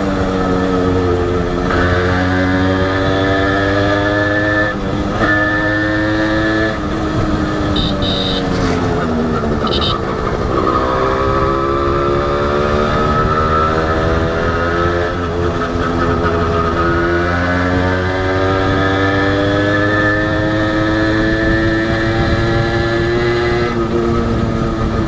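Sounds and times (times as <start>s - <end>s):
motorcycle engine running: 5.9s - 13.3s
short high-pitched beeps: 7.8s - 8.7s, 9.6s - 10.0s.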